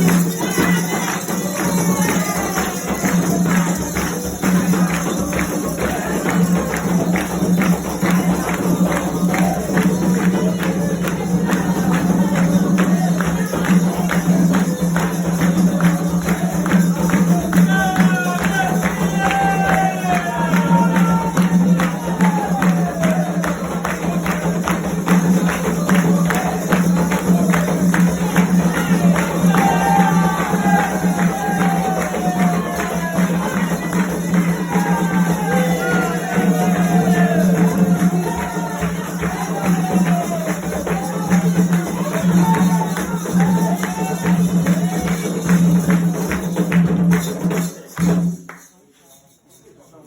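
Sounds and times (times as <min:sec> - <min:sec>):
voices singing: 0:00.0 - 0:46.2
percussion beating a rhythm: 0:00.0 - 0:50.0.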